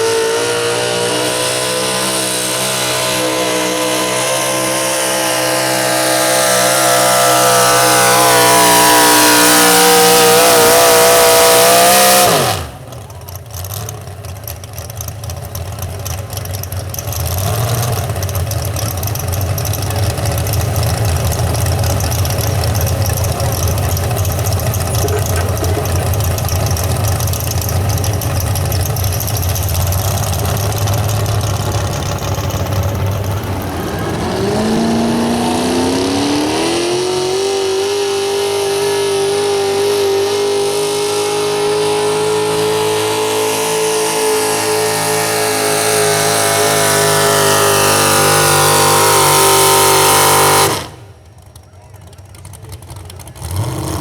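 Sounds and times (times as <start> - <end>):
truck engine roaring: 0.0 - 54.0.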